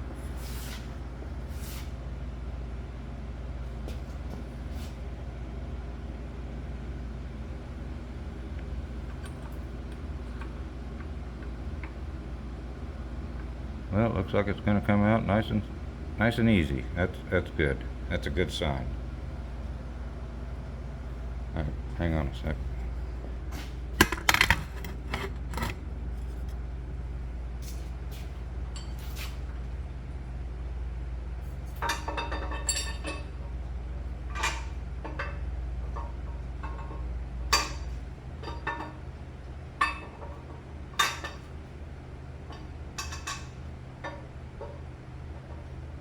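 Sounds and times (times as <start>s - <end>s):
low steady hum: 2.2s - 46.0s
metal parts and tools clinking: 24.0s - 25.8s.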